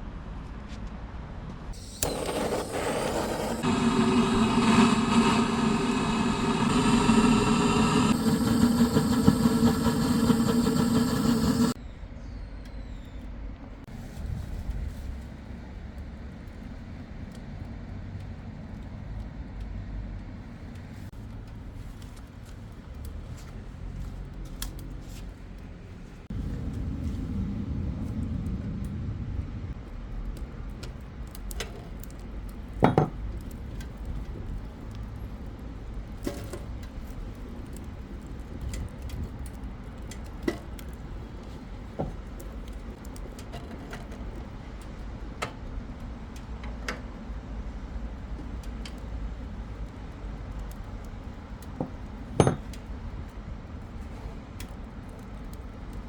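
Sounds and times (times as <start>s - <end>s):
low steady rumble: 25.8s - 36.2s.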